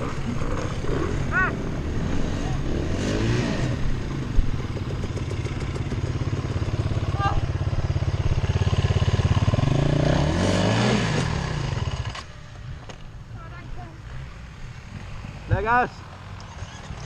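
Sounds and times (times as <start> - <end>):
dirt bike engine revving: 0.0 - 12.7, 14.0 - 17.0.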